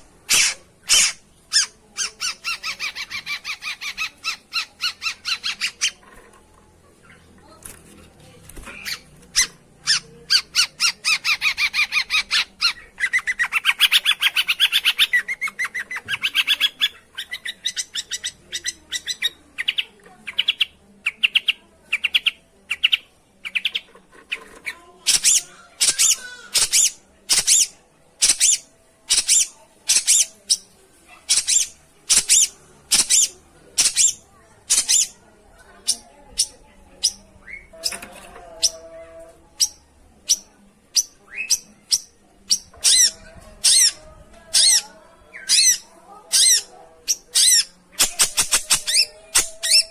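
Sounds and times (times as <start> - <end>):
shrike chattering and calling: 0.3 - 6.0, 25.0 - 30.6, 31.3 - 35.2, 41.0 - 44.8, 45.4 - 49.9.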